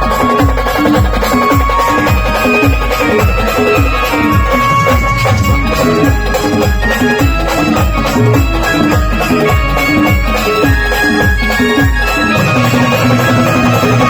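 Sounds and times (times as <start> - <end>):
low drum beat: 1.0 - 10.8
brass band playing: 3.6 - 8.3.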